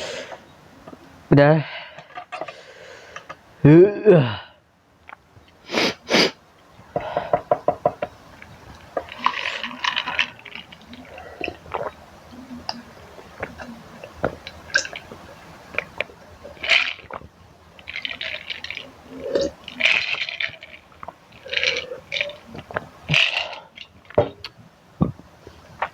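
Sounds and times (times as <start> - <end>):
noodles slurped and chewed: 8.4 - 24.1.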